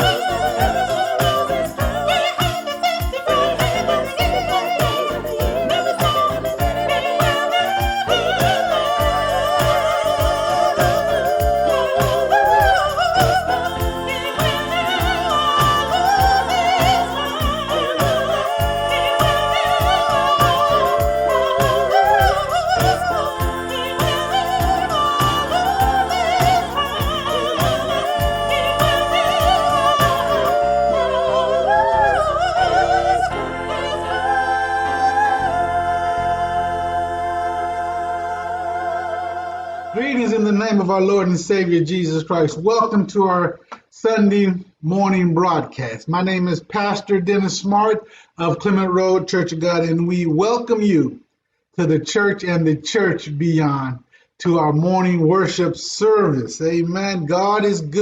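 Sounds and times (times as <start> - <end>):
music with drums and cymbals: 0.0 - 30.6
person singing with vibrato: 0.0 - 40.8.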